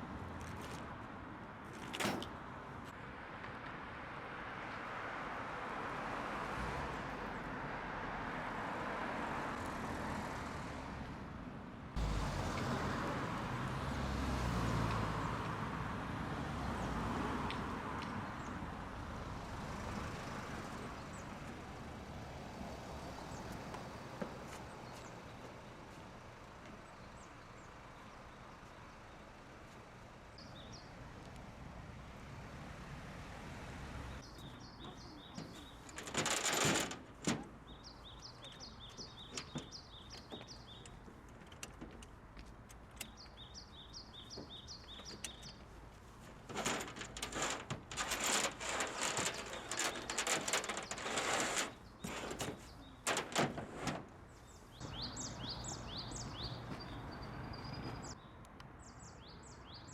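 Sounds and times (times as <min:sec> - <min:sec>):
rattling clatter: 0:35.4 - 0:37.6, 0:46.4 - 0:54.2
small bird chirping: 0:43.0 - 0:45.8, 0:54.3 - 0:58.2.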